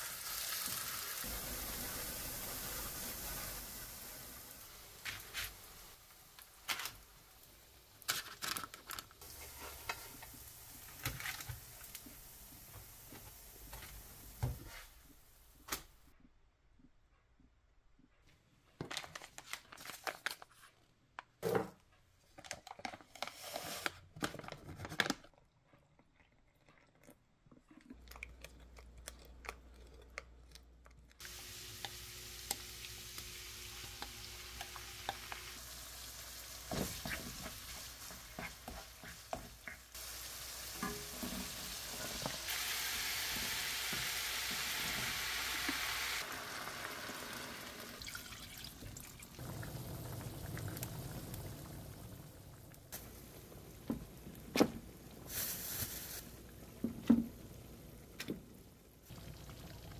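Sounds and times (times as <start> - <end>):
chicken sizzling in a wok: 0.0 - 8.0, 9.2 - 15.0, 31.2 - 57.8
kitchen knocks and clatters: 21.4 - 21.9, 40.8 - 42.4
stirring in a wok: 36.6 - 42.6.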